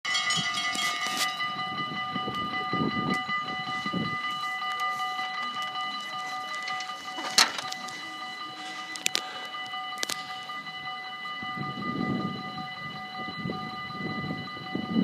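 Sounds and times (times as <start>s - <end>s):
metallic clatter: 0.0s - 1.5s, 6.3s - 8.0s
high-pitched whine: 0.0s - 15.0s.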